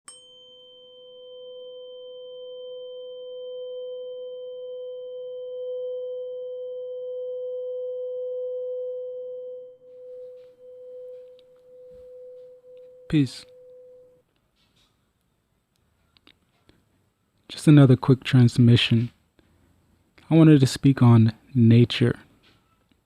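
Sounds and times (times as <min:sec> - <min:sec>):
steady pure tone: 0:00.1 - 0:14.2.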